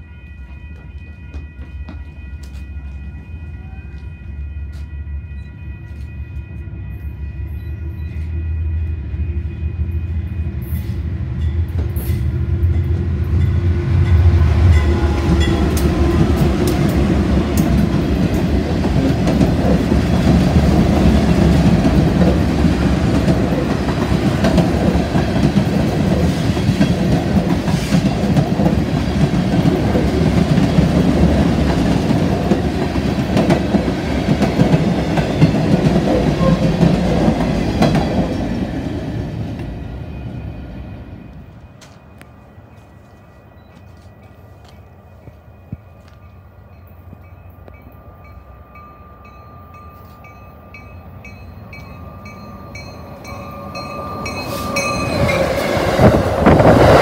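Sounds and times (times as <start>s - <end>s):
distant train horn chord: 0.0s - 11.2s, 12.1s - 18.4s, 36.1s - 38.2s
wheels clickety-clack on rails: 10.6s - 40.6s, 51.8s - 57.0s.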